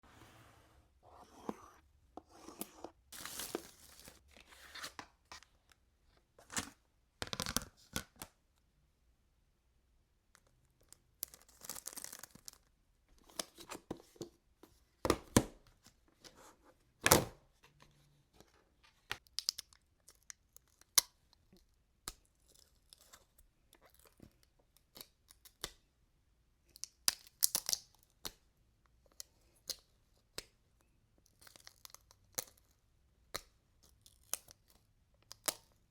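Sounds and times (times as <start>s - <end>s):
packaging tearing and crinkling: 3.2s - 4.2s.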